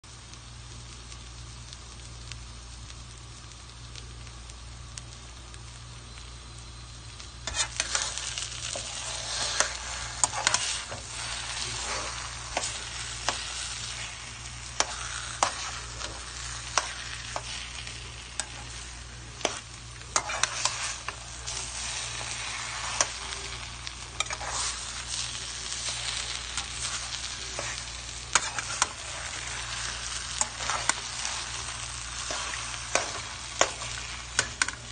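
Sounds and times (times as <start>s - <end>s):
food sizzling in a pan: 0.0s - 34.9s
spatula scraping a pan: 7.4s - 34.9s.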